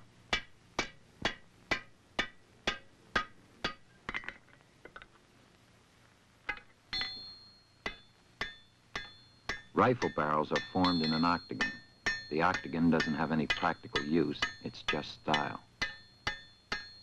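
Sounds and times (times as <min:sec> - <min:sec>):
hammer striking metal on anvil: 0:00.3 - 0:04.2, 0:06.5 - 0:17.0
anvil ringing: 0:06.5 - 0:17.0.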